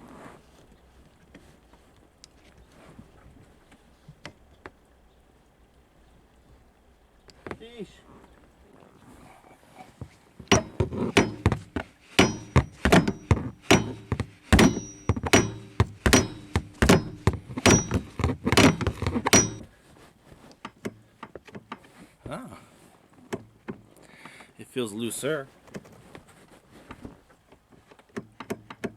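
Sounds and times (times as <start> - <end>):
light hammer taps: 10.5 - 19.6
hammer blows on metal: 10.5 - 19.7.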